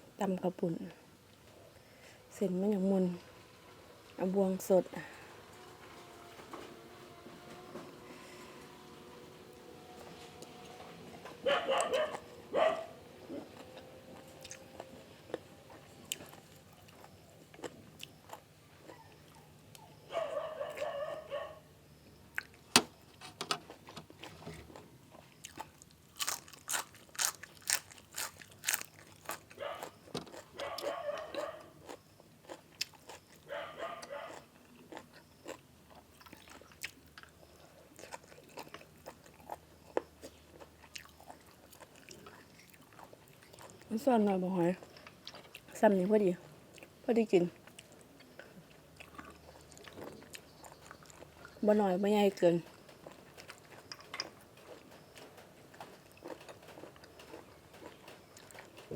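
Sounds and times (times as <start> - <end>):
chewing crunchy food: 11.3 - 22.7, 23.7 - 58.9
crunching snail shells clicking: 25.5 - 30.7, 52.7 - 58.9.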